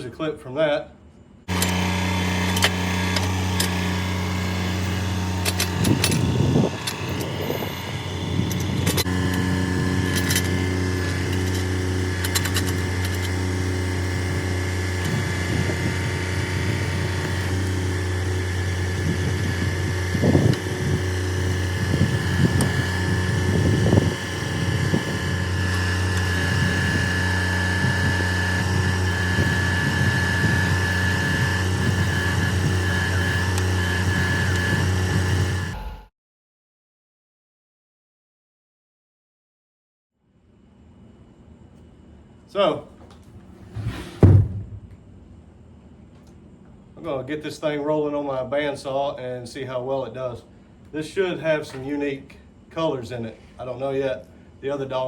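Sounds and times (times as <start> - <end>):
machine engine running: 1.5 - 36.1.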